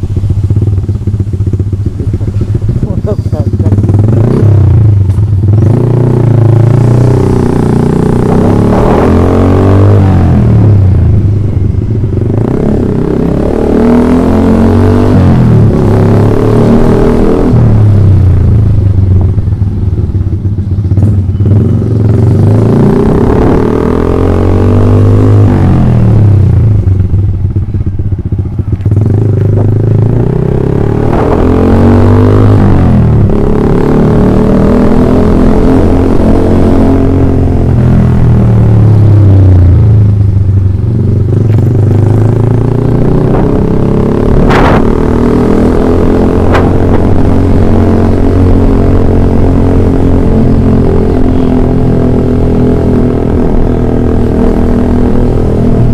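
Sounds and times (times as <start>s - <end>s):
exhaust crackle: 0.0s - 13.4s, 25.5s - 55.9s
motorcycle engine revving: 0.0s - 55.9s.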